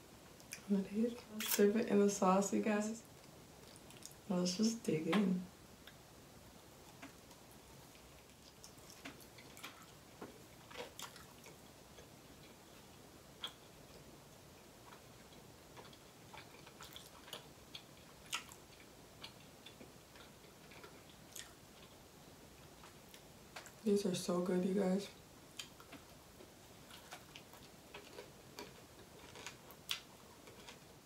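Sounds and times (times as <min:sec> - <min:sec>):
chewing mouth sounds: 0:14.9 - 0:21.9.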